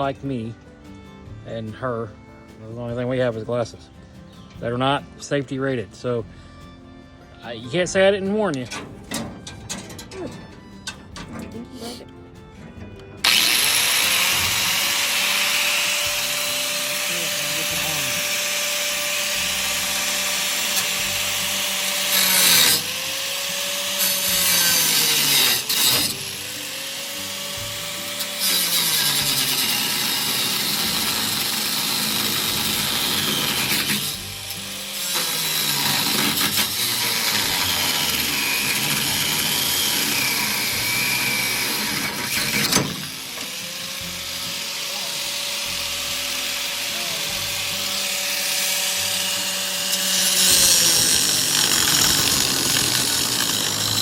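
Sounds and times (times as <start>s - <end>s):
electric grinder cutting steel: 13.0s - 54.0s.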